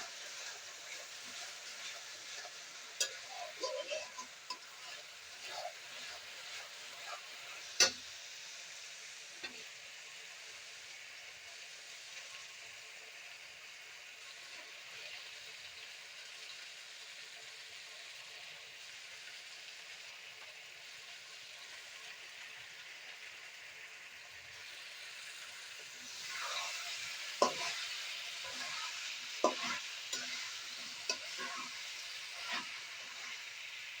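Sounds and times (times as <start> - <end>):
utensil scraping a pan: 0.0 - 8.0, 26.1 - 33.4
chicken sizzling in a pan: 0.0 - 34.0.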